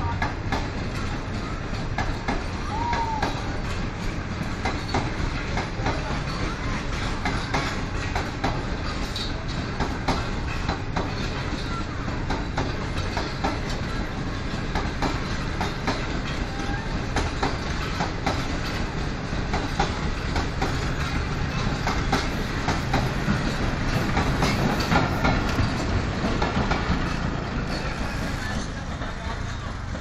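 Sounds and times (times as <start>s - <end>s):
train rumble: 0.0s - 30.0s
wheels clattering over rail joints: 0.0s - 30.0s.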